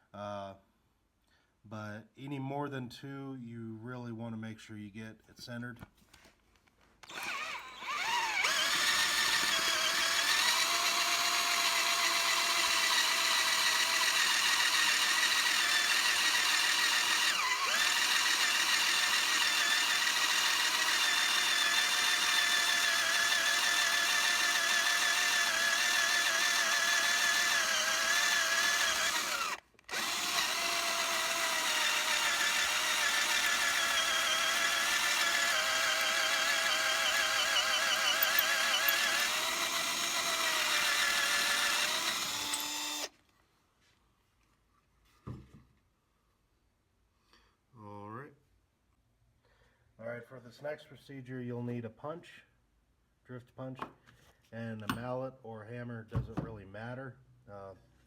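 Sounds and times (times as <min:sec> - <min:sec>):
electric drill whining: 0:07.0 - 0:43.2.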